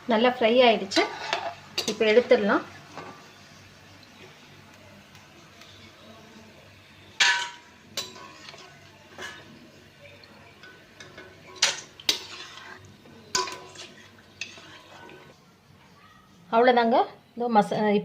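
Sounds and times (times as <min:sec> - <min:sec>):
metal utensils clinking on pan: 0:00.8 - 0:03.2, 0:07.2 - 0:15.3.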